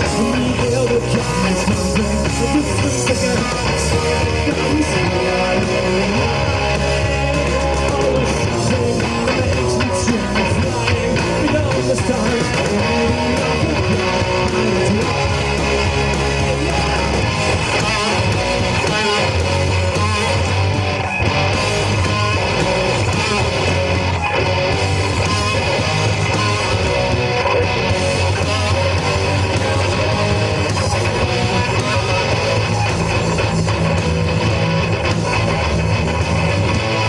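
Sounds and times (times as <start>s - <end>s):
bass guitar: 0.0s - 37.0s
distorted electric guitars: 0.0s - 37.0s
drums: 0.0s - 37.0s.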